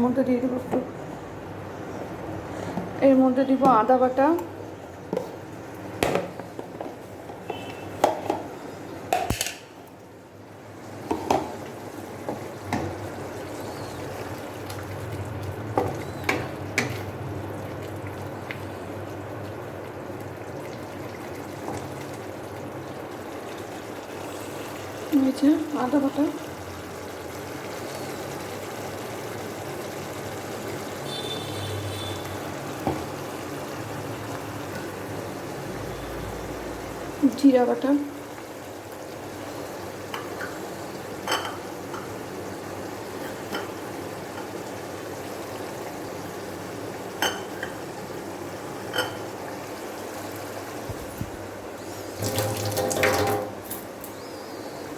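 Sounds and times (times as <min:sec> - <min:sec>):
curry sizzling in a pan: 0:04.8 - 0:54.9
spoon scraping a pan: 0:43.2 - 0:43.8.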